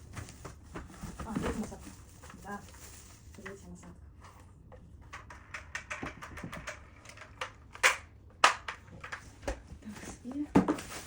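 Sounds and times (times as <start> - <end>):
plastic parts clicking and tapping: 5.0 - 9.6.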